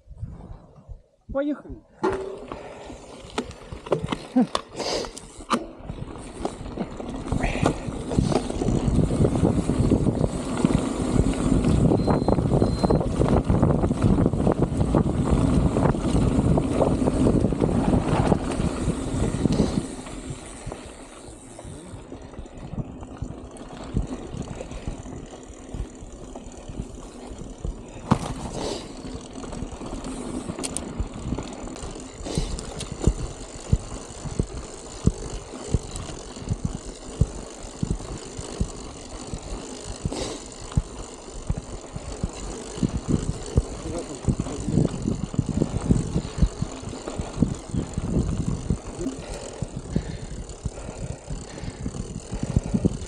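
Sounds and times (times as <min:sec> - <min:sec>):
bicycle rattling over bumpy ground: 0:00.2 - 0:53.0
wind buffeting microphone: 0:05.8 - 0:21.0, 0:21.6 - 0:53.0.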